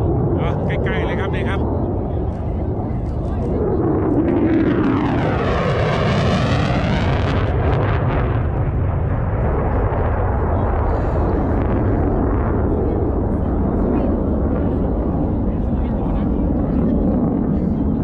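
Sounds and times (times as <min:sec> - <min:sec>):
jet aircraft passing: 0:00.0 - 0:18.0.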